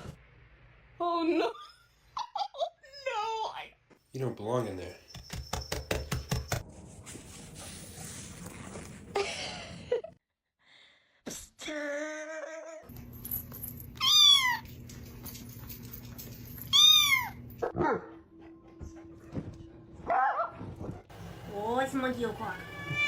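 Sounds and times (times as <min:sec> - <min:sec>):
cat meowing: 0:22.5 - 0:23.0.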